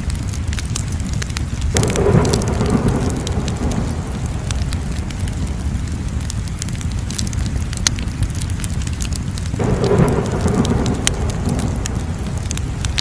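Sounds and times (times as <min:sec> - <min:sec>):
fire crackling: 0:00.0 - 0:13.0
flames rushing: 0:00.0 - 0:13.0.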